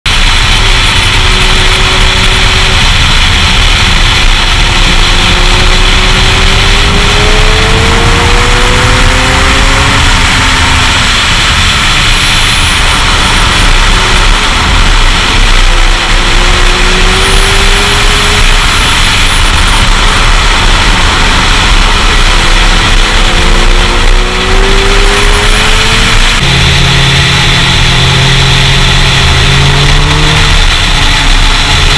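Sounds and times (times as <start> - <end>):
loud rush of wind: 0.0 - 31.9
motorcycle engine accelerating: 0.0 - 31.9.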